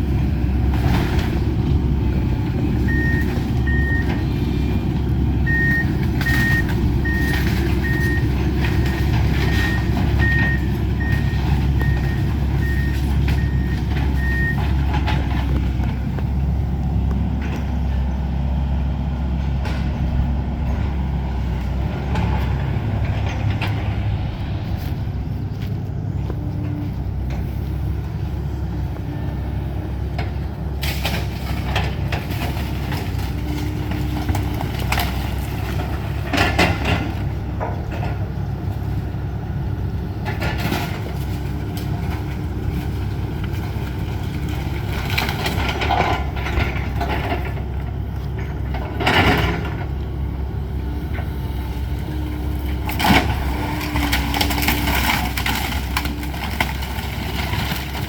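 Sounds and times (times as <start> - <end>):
excavator diesel engine with whine: 0.0 - 58.0
debris crashing and falling: 52.8 - 58.0.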